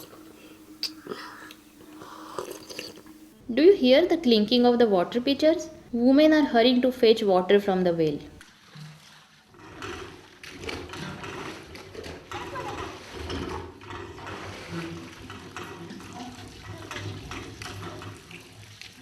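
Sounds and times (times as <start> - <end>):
metal pitchers clinking: 0.0 - 3.3
water splashing and pouring: 8.4 - 19.0.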